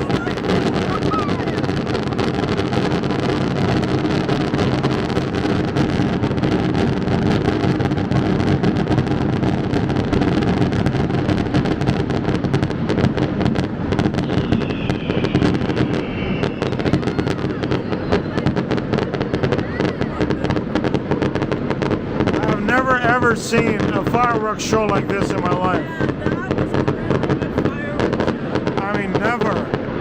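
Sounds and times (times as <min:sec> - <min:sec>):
fireworks crackling and banging: 0:00.0 - 0:30.0.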